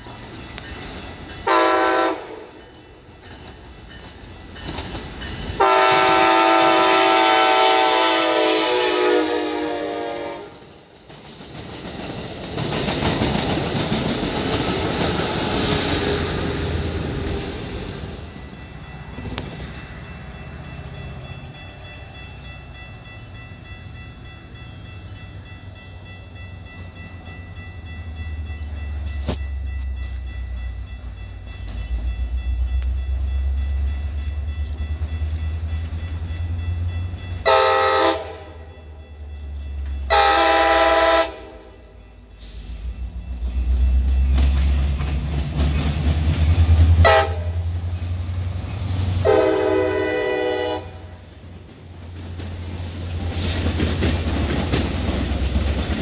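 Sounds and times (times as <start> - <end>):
diesel locomotive rumbling: 0.0 - 56.0
train cars rolling on rails: 0.0 - 56.0
train horn blast: 1.4 - 2.6, 5.6 - 10.8, 37.4 - 38.8, 40.0 - 42.8, 46.9 - 47.8, 49.2 - 51.2.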